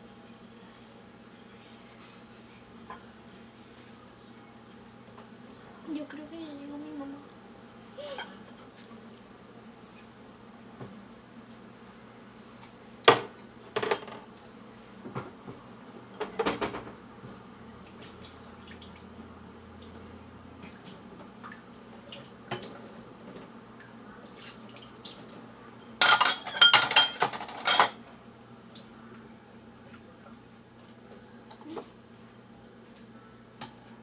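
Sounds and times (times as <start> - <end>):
dishes and cutlery clinking: 26.0 - 28.0.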